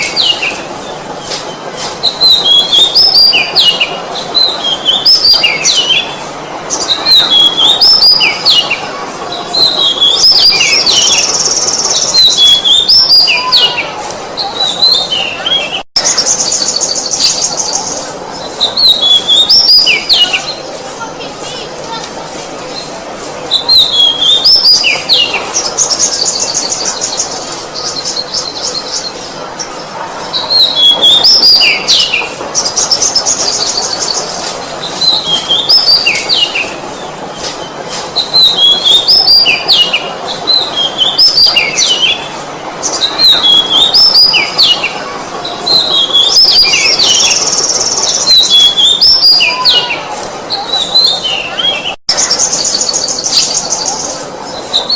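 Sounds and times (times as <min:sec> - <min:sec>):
songbird singing whistled trills: 0:01.2 - 0:08.8, 0:09.5 - 0:20.7, 0:23.5 - 0:29.2, 0:30.3 - 0:45.0, 0:45.7 - 0:54.9.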